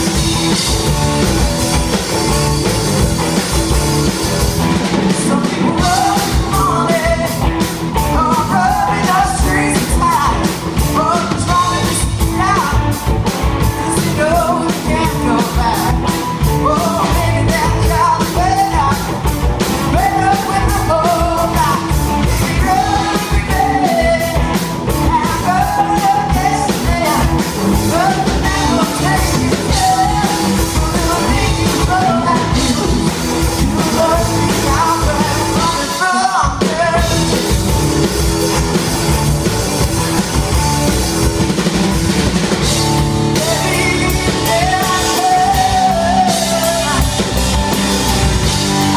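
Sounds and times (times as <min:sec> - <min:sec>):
drum kit: 0:00.0 - 0:48.9
rock band playing live: 0:00.0 - 0:48.9
person singing: 0:05.0 - 0:37.5, 0:43.2 - 0:47.7.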